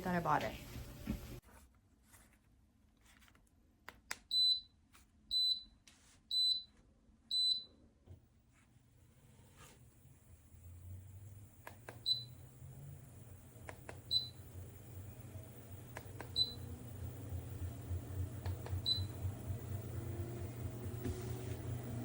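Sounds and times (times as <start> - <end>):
treadmill motor hum: 9.8 - 22.0
clicks: 15.9 - 16.4.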